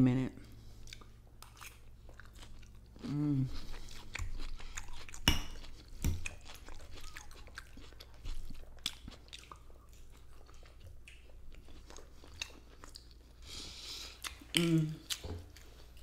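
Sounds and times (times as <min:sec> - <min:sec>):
close chewing and crunching: 0:00.3 - 0:16.0.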